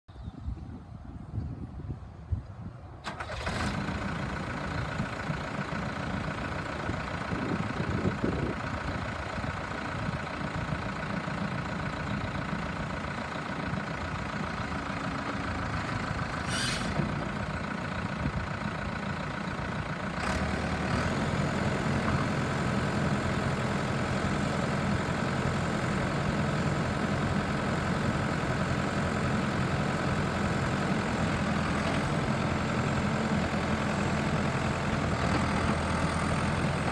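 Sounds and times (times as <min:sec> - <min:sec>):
diesel engine running: 0:02.9 - 0:36.9
brief hiss: 0:16.4 - 0:17.1.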